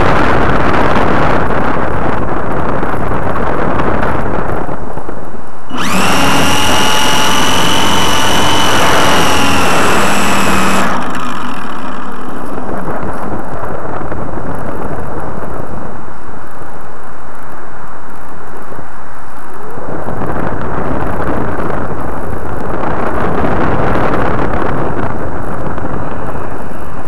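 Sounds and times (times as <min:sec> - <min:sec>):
wind rushing across microphone: 0:00.0 - 0:27.0
model airplane motor whining: 0:05.7 - 0:14.2.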